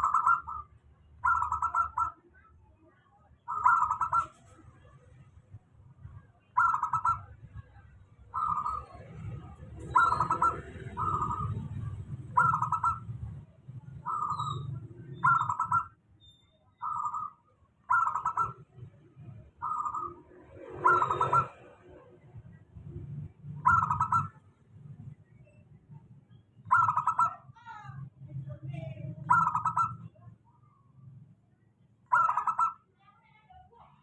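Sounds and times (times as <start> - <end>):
zebra dove trilled coos: 0.0 - 2.4, 3.4 - 4.7, 6.1 - 7.6, 8.2 - 16.0, 16.7 - 22.0, 23.5 - 24.5, 26.6 - 27.6, 29.1 - 30.8, 32.0 - 32.9.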